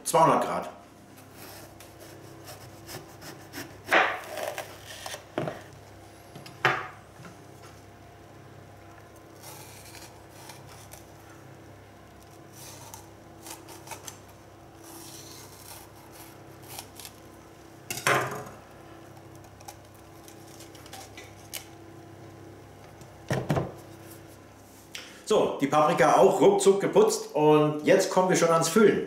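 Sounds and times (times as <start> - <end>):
knife cutting bell pepper: 1.2 - 5.6, 9.4 - 11.1, 12.3 - 17.2.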